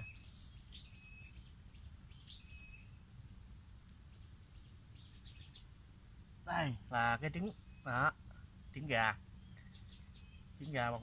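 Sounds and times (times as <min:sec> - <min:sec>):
thin whistles: 0:00.0 - 0:05.6
bird chirps: 0:00.0 - 0:11.0.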